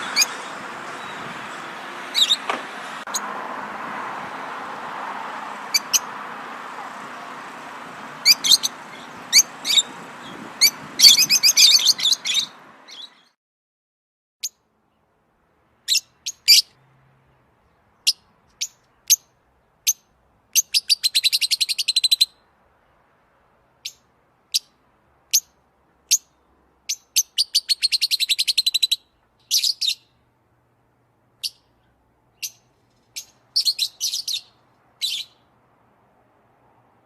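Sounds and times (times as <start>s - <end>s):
bird trilling: 0.0s - 1.3s, 2.1s - 2.5s, 5.7s - 6.1s, 8.2s - 13.3s, 26.9s - 30.2s, 32.4s - 35.4s
bird chirping: 0.0s - 3.2s, 5.7s - 6.1s, 8.2s - 13.4s, 15.8s - 22.4s, 23.8s - 30.3s, 31.4s - 35.5s.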